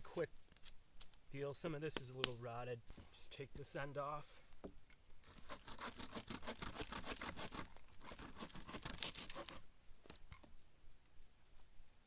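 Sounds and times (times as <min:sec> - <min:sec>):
hand saw cutting log: 0:05.2 - 0:09.6.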